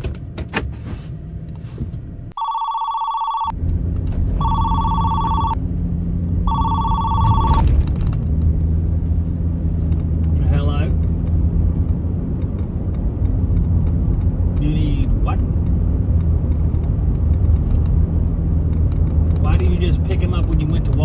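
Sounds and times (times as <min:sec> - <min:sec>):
vehicle engine hum: 0:00.0 - 0:21.0
phone ringtone ringing: 0:02.4 - 0:03.5, 0:04.4 - 0:05.6, 0:06.5 - 0:07.6.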